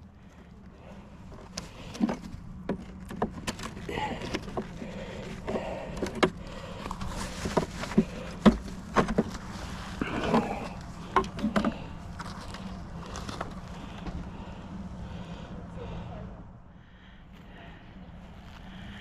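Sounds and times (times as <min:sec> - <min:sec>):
steady low hum: 0:00.0 - 0:19.0
wooden knocks and scrapes: 0:01.6 - 0:14.2.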